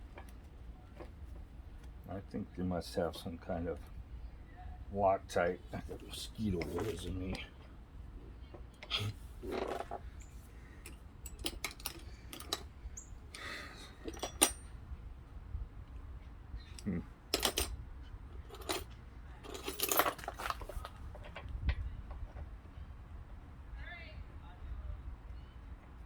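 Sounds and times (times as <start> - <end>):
metal tools clinking: 5.8 - 7.5, 8.8 - 14.7, 16.8 - 17.7, 18.4 - 21.4.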